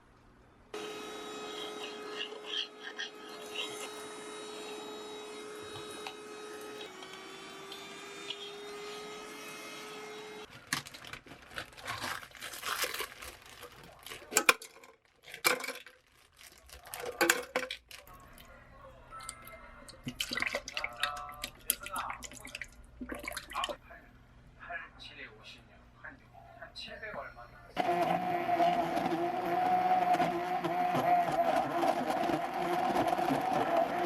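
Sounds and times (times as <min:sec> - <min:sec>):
appliance hum: 0:00.0 - 0:14.5, 0:27.8 - 0:34.0
plastic packaging tearing and crinkling: 0:10.5 - 0:18.3.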